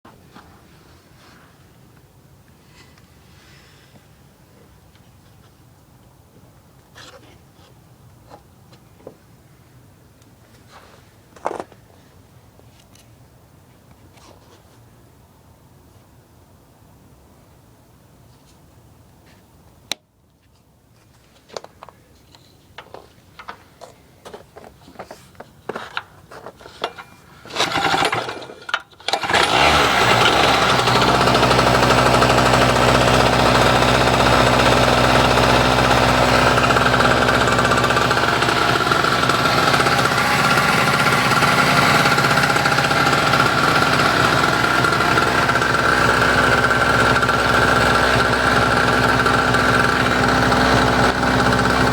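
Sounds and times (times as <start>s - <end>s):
generator engine running: 27.5s - 51.9s.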